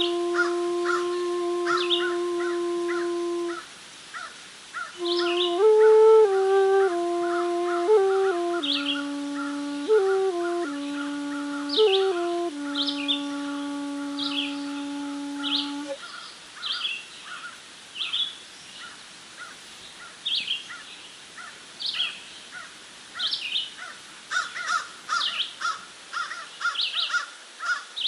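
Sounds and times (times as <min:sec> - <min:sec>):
bamboo flute low note: 0:00.0 - 0:03.6, 0:05.0 - 0:16.0.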